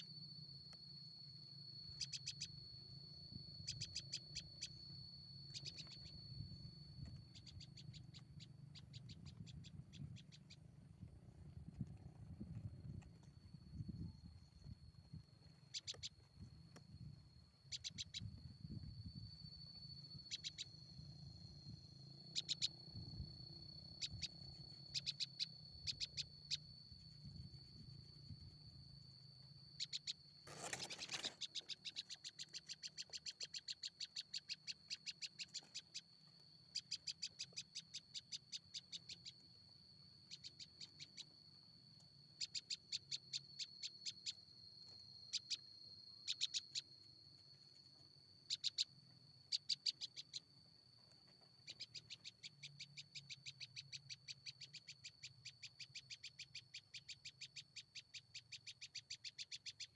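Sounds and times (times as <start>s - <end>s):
high-pitched whine: 0.0s - 37.1s
small bird ticking calls: 0.0s - 59.9s.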